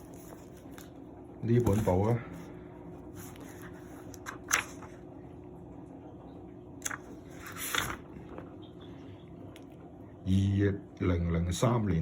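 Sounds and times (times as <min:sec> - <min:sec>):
notebook pages rustling: 0:00.0 - 0:05.0, 0:06.8 - 0:08.6.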